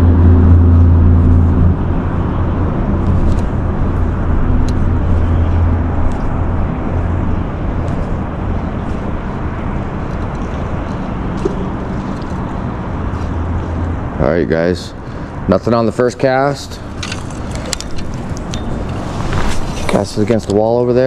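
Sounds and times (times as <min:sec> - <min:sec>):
low engine-like hum: 0:00.0 - 0:21.0.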